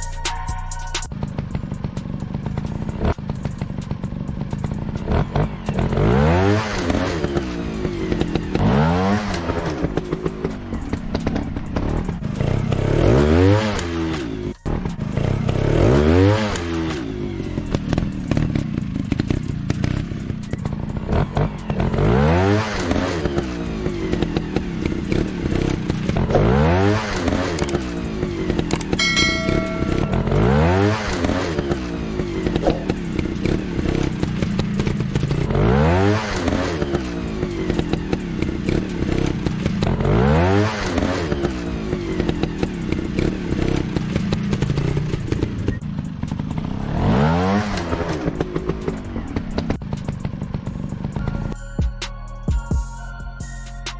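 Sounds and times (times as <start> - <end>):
dirt bike engines revving: 1.1 - 51.6
short steady tone: 29.0 - 31.0.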